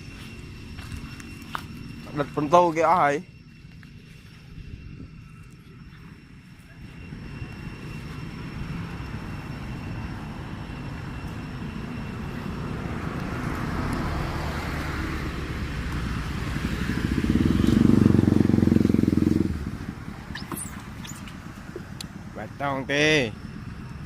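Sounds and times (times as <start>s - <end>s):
vehicle engine running: 5.4s - 24.0s.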